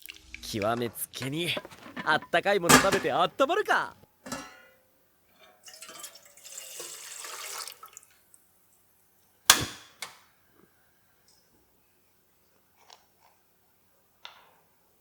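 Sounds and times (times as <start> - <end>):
water pouring: 0.0 - 0.5, 5.6 - 8.2.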